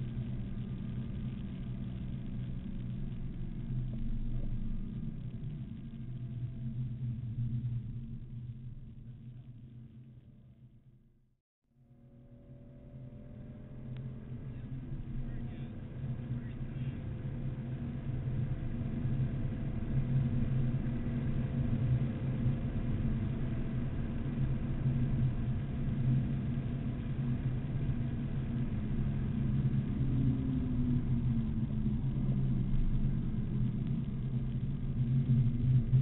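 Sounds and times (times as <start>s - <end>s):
road noise inside car: 12.0s - 36.0s.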